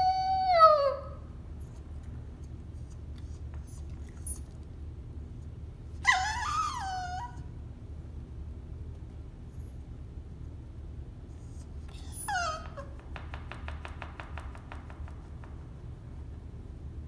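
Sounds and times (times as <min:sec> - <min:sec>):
dog whining: 0:00.0 - 0:01.4, 0:06.0 - 0:07.5, 0:11.4 - 0:13.2
steady low hum: 0:01.0 - 0:17.0.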